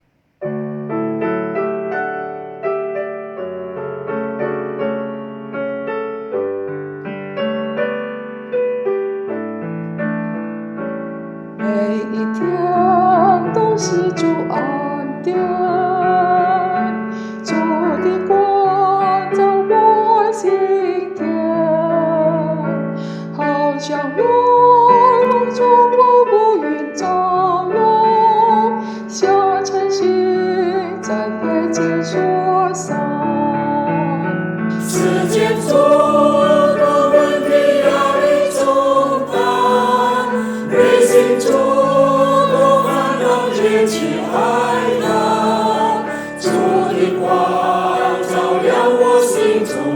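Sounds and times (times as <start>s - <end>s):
piano: 0.0s - 49.9s
choir singing: 34.8s - 49.9s.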